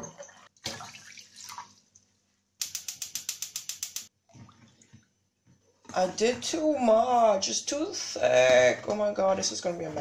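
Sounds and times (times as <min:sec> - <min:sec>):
water pouring into saucepan: 0:00.1 - 0:02.0
rapid sharp clicks: 0:02.6 - 0:04.1.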